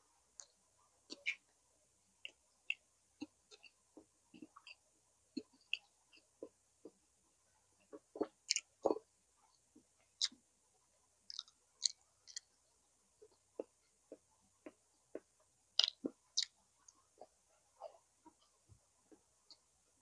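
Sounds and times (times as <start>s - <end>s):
mouth clicks: 1.1s - 1.4s, 11.3s - 12.5s, 13.6s - 16.6s
person chewing with wet smacks: 1.1s - 1.4s, 2.2s - 7.0s, 7.8s - 9.0s, 11.3s - 12.6s, 13.2s - 19.6s.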